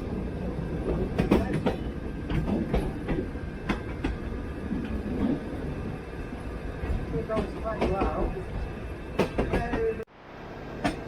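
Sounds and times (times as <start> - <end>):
tram rumbling on rails: 0.0 - 11.0
wheels clacking and knocking: 0.9 - 4.2, 6.8 - 8.4, 9.2 - 10.0.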